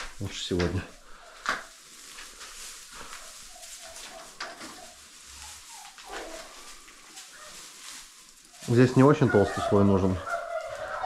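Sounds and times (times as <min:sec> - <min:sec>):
hay rustling: 0:00.0 - 0:11.0
poultry calls: 0:03.0 - 0:11.0.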